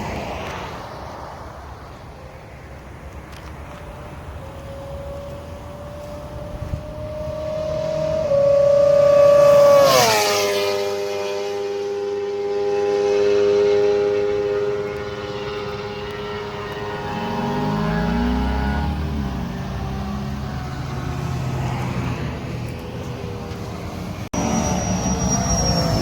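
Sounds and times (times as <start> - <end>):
motorcycle revving past: 3.9 - 22.7.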